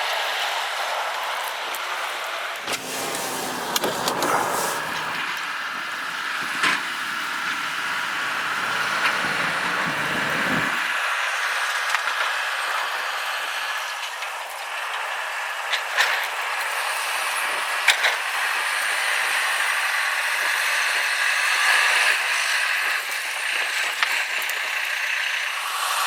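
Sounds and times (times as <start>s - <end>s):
road and wind noise inside car: 2.7s - 5.3s, 5.9s - 10.8s.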